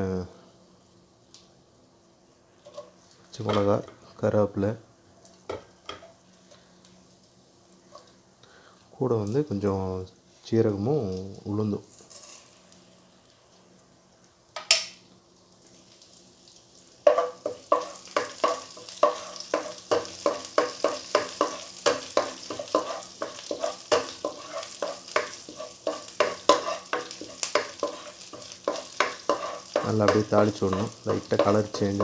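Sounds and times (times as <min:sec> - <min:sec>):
spices sizzling in hot oil: 0:10.3 - 0:32.0
spoon scraping pan: 0:17.1 - 0:32.0.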